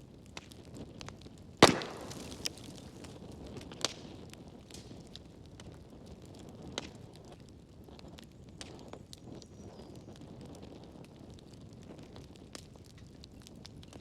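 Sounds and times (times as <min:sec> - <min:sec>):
wood fire crackling: 0:00.0 - 0:14.0
loud pop from fire: 0:01.6 - 0:05.0.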